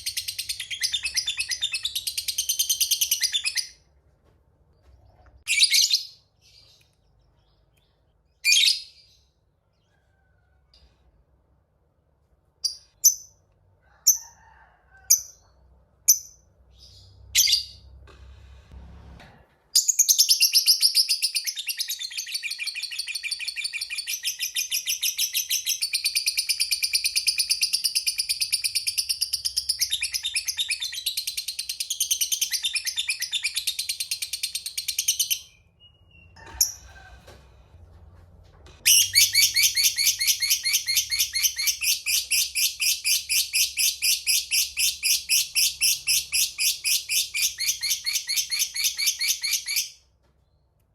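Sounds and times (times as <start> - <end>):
lovebird chirping and trilling: 0.0 - 3.8, 5.4 - 6.8, 7.4 - 9.2, 16.1 - 17.9, 19.8 - 36.8, 38.8 - 50.0.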